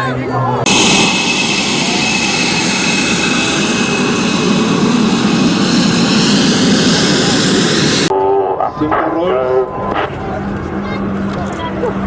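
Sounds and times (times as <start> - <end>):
jet engine rushing: 0.6 - 8.1.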